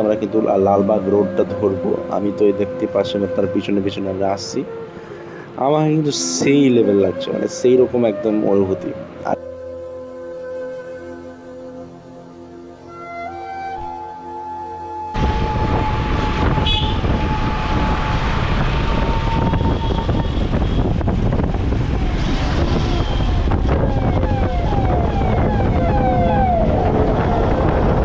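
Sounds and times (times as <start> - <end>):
siren-like falling notes: 12.9 - 28.0
steady horn-like tone: 15.1 - 21.6
wind rush: 15.2 - 28.0.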